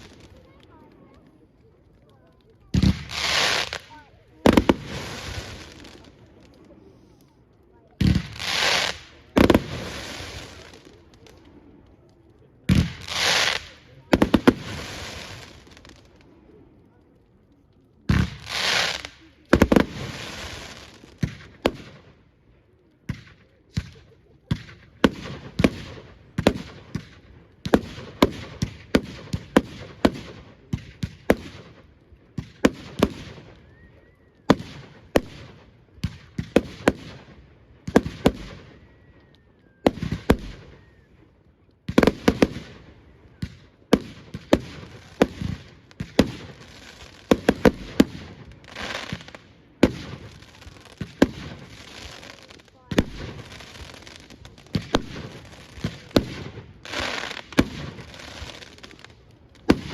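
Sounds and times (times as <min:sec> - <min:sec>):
firework crackle: 0:00.0 - 0:59.9
firework bangs: 0:02.6 - 0:06.8, 0:07.9 - 0:11.5, 0:12.6 - 0:16.2, 0:18.0 - 0:22.2, 0:23.0 - 0:33.8, 0:34.4 - 0:38.8, 0:41.8 - 0:59.9
firework rushing hiss: 0:02.7 - 0:07.1, 0:08.0 - 0:11.3, 0:12.7 - 0:16.2, 0:18.1 - 0:22.0
faint firework whistles: 0:32.5 - 0:37.0, 0:37.9 - 0:43.6.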